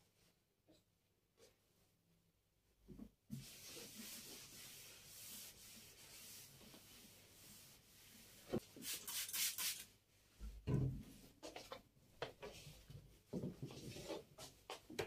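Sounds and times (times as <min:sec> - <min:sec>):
rubbing across a surface: 0:03.3 - 0:09.9.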